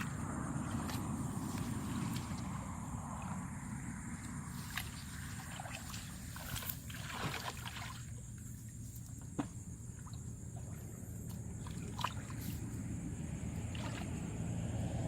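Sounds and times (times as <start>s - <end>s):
steady low rumble: 0.0s - 6.4s, 9.6s - 15.0s
water sloshing and splashing: 0.0s - 15.0s.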